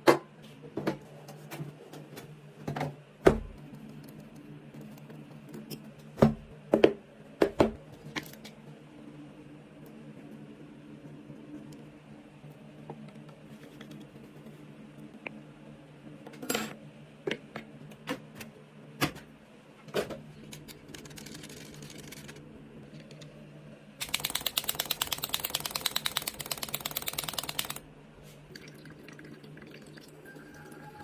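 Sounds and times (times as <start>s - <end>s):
fast mechanical clicking: 20.5s - 22.4s, 24.0s - 27.8s.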